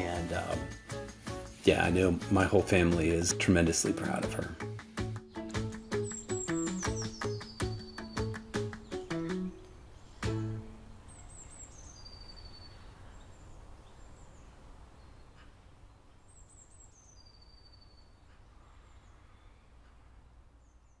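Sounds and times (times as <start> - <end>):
soft outdoor ambience: 0.0 - 21.0
bird chirps and whistle: 5.8 - 8.4, 11.3 - 12.9.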